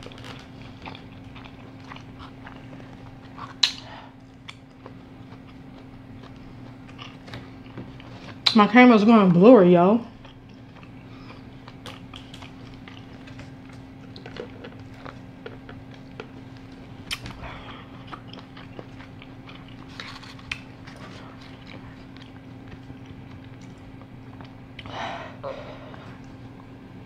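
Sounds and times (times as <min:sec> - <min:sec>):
steady low hum: 0:00.0 - 0:27.0
person chewing wet mouth noises: 0:17.1 - 0:19.9.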